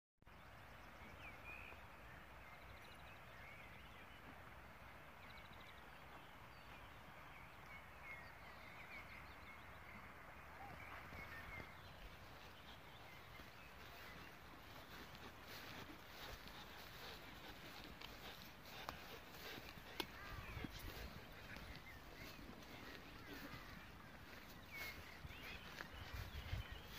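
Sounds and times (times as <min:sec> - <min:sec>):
steady outdoor hiss: 0:00.3 - 0:26.6
distant bird chirps: 0:07.5 - 0:26.9.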